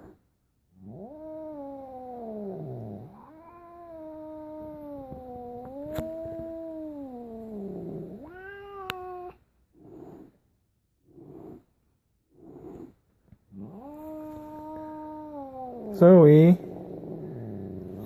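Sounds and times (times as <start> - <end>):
cat yowling: 8.2 - 9.4, 13.6 - 16.6.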